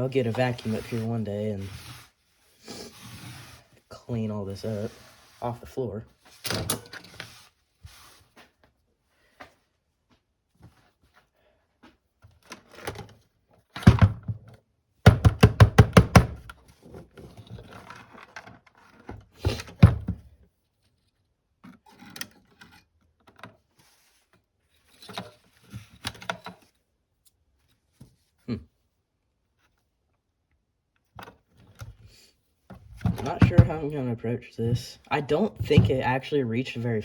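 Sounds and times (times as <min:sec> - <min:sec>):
knocking on a workbench: 0:15.1 - 0:16.5
heavy thuds: 0:33.0 - 0:34.0.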